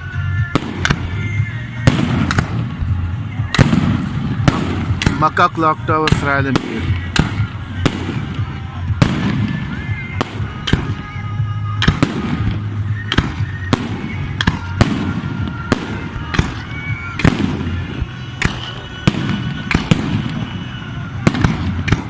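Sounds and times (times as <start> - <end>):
crowd noise: 0.0 - 22.0
fireworks bangs: 0.0 - 22.0
fireworks whistling: 0.0 - 22.0.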